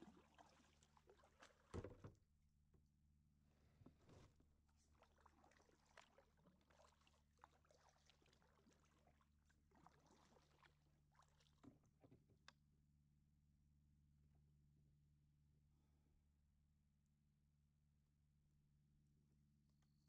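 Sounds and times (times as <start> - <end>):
paddle knocking and splashing: 0.0 - 2.2.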